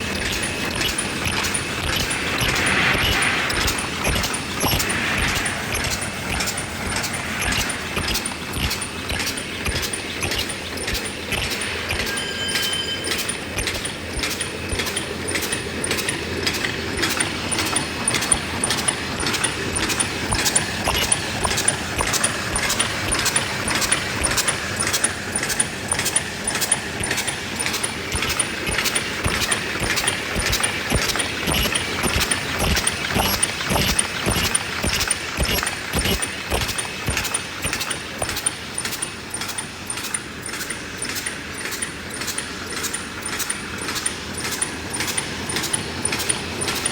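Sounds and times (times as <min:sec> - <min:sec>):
machine clacking rhythmically: 0:00.0 - 0:46.9
steady mechanical noise: 0:00.0 - 0:46.9.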